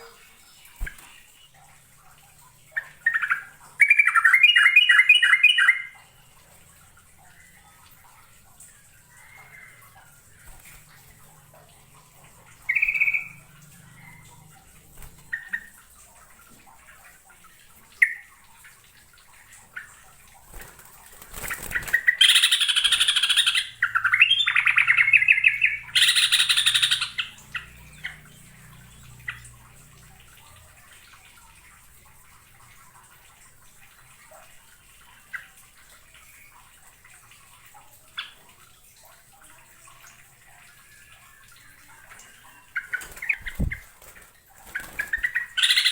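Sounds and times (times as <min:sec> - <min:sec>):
bird chirping and singing: 0:21.7 - 0:29.5, 0:44.8 - 0:45.9.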